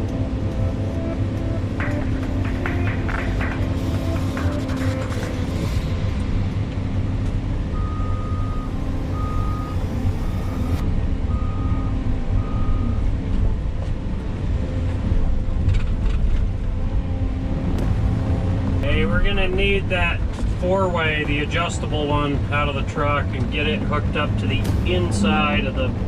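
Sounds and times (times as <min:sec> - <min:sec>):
heavy diesel machinery running: 0:00.0 - 0:26.0
reversing alarm beeping: 0:07.7 - 0:13.1.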